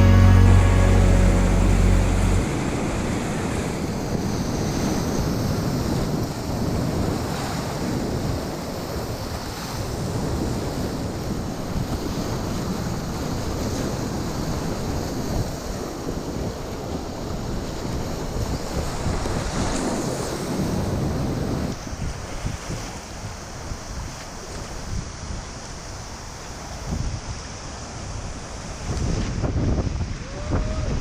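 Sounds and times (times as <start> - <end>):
wind buffeting microphone: 28.8 - 31.0.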